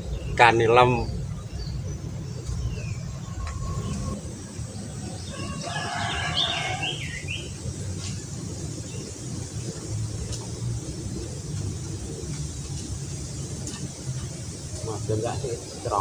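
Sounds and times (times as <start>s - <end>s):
steady low rumble: 0.0s - 16.0s
rooster crowing: 3.1s - 4.3s, 5.0s - 7.4s.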